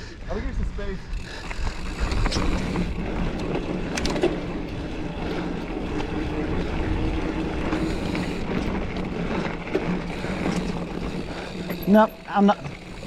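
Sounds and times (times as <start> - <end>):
bike tyres rolling on dirt: 0.0 - 13.0
wind noise on microphone: 0.1 - 9.6
bike clicks and rattles: 0.3 - 13.0.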